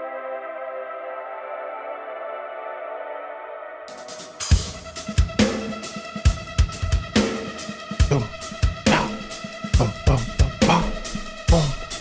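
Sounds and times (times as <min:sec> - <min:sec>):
drum beat with kick hits: 0:04.5 - 0:12.0.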